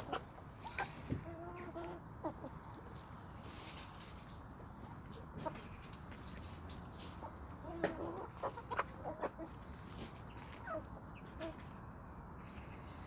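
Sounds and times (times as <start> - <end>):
chickens clucking: 0.0 - 11.9.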